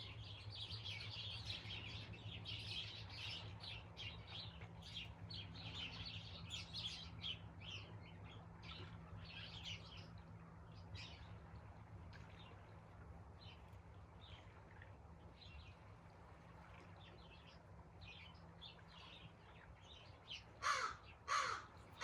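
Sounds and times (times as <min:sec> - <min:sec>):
songbirds chirping: 0:00.0 - 0:22.0
crow cawing: 0:20.6 - 0:21.8.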